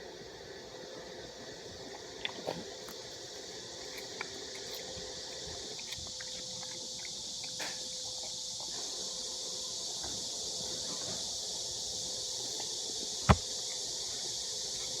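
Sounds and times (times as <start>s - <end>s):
cicadas calling: 0.0s - 15.0s
dog eating crunchily: 1.1s - 9.2s.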